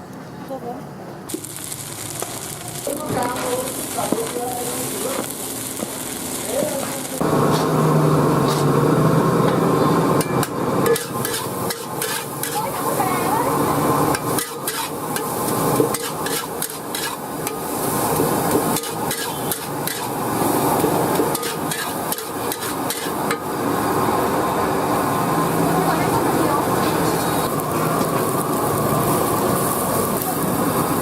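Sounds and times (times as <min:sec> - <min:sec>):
metal spatula scraping a wok: 0:08.4 - 0:08.8, 0:10.2 - 0:13.0, 0:14.1 - 0:23.4.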